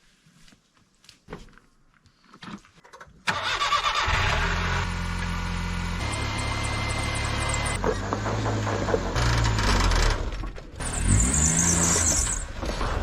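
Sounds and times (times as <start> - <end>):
vehicle engine starting and idling: 3.2 - 11.3.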